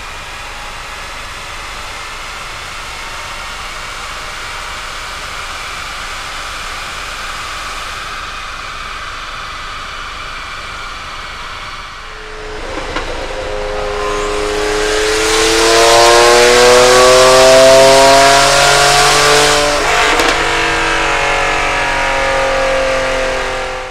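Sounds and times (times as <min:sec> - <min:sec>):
diesel engine accelerating: 0:11.8 - 0:23.9.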